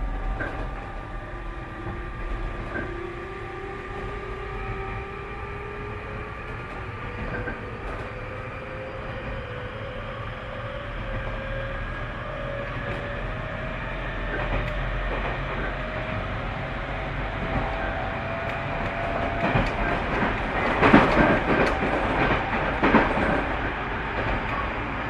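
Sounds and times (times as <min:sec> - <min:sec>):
faint clicks from rails: 0:00.0 - 0:01.2, 0:01.8 - 0:03.0, 0:06.1 - 0:08.2, 0:12.5 - 0:16.3, 0:17.3 - 0:25.0.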